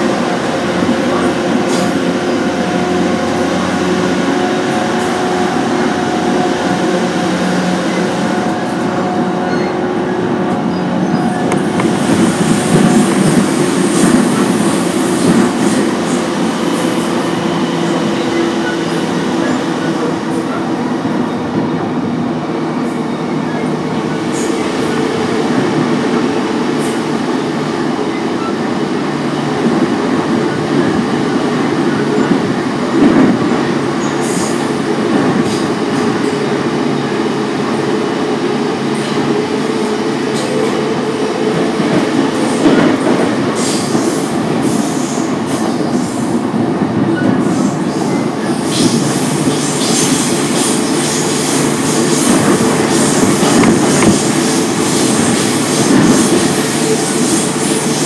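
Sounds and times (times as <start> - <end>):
train wheels rumbling on rail: 0.0 - 58.0
high-pitched wheel squeals: 9.4 - 11.6.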